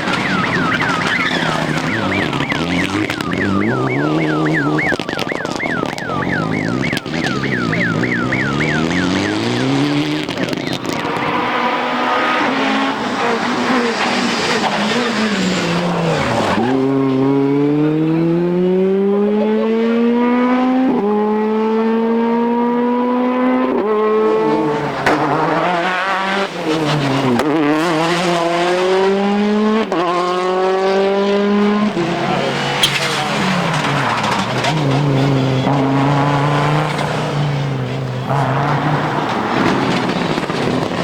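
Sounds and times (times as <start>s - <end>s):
rally car engine accelerating: 0.0s - 41.0s.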